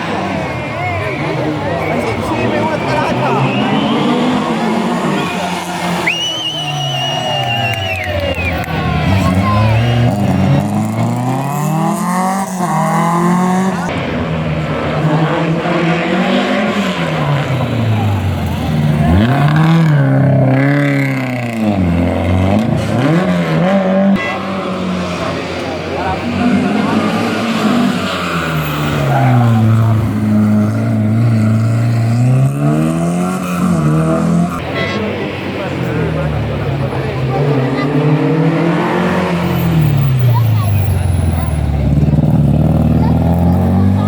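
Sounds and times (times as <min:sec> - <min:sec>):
rally car engine accelerating: 0:00.0 - 0:44.0.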